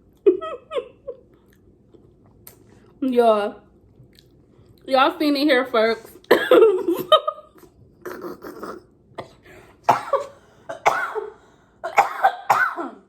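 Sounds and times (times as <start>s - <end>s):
person coughing: 6.3s - 6.6s, 8.1s - 13.0s
person clearing throat: 8.0s - 13.0s.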